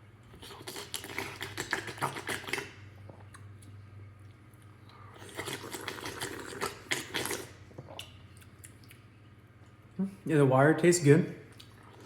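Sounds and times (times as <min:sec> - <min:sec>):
steady low hum: 0:00.0 - 0:12.0
slurping and lapping water: 0:00.3 - 0:03.3, 0:04.9 - 0:08.4.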